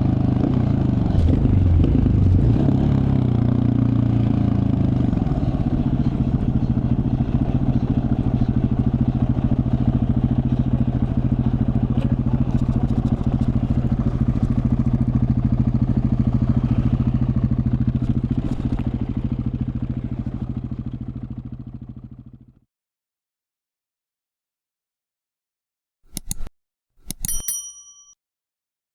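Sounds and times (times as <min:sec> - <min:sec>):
motorcycle engine idling: 0:02.8 - 0:22.6.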